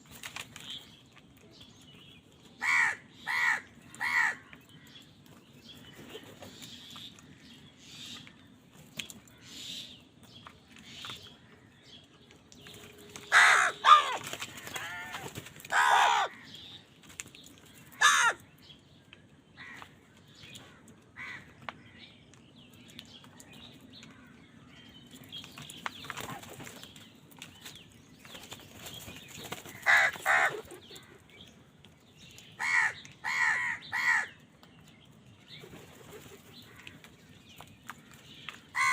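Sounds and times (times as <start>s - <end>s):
crows cawing: 2.6s - 4.9s, 13.2s - 16.5s, 17.9s - 18.4s, 19.6s - 19.9s, 21.2s - 21.6s, 29.7s - 31.2s, 32.6s - 34.4s.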